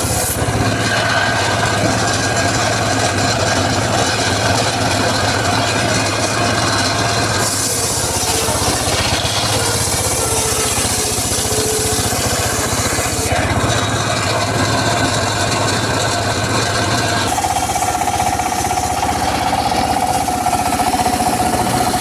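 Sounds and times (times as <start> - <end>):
circular saw cutting wood: 0.0 - 22.0
engine running: 0.0 - 22.0.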